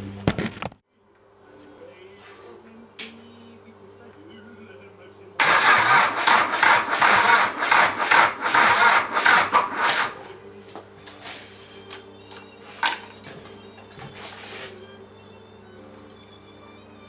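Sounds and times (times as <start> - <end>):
starter motor cranking engine: 5.4 - 10.2.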